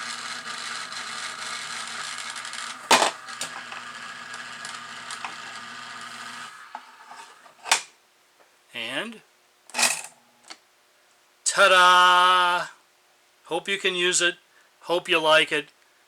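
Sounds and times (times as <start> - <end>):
toy train accessory humming: 0.0 - 7.7.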